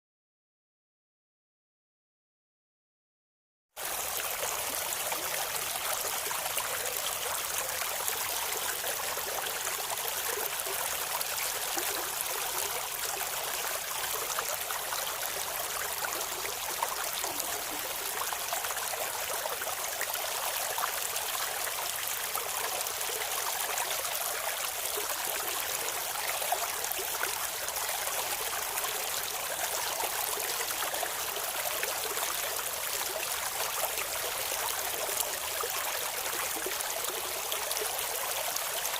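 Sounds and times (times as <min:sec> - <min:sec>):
river water babbling over stones: 0:03.8 - 0:38.9.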